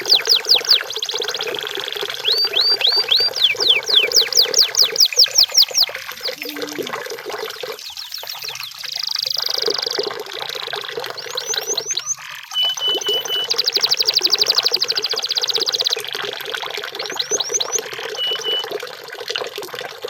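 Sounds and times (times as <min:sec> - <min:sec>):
canary singing: 0:00.0 - 0:06.9, 0:11.2 - 0:16.0.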